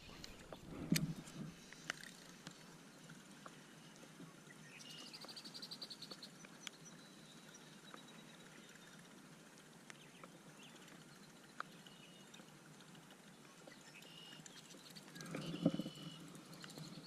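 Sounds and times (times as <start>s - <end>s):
faint clicks: 0.0s - 17.0s.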